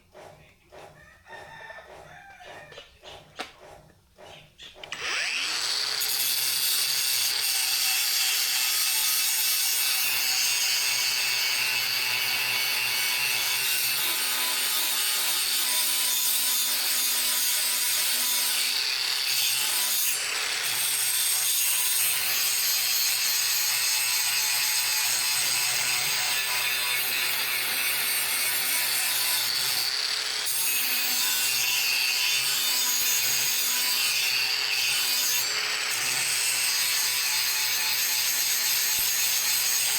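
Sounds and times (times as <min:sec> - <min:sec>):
power tool grinding steel: 0:04.8 - 0:39.9.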